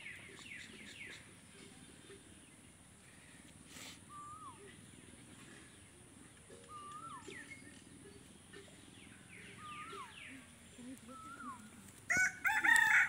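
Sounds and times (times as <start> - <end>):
low background murmur: 0.0 - 13.0
whistled bird call: 4.1 - 4.8, 6.7 - 7.8.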